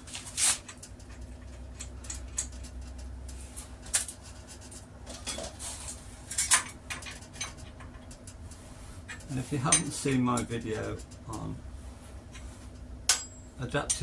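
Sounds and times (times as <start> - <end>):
light metallic clinks and taps: 9.1 - 11.5, 12.3 - 14.0.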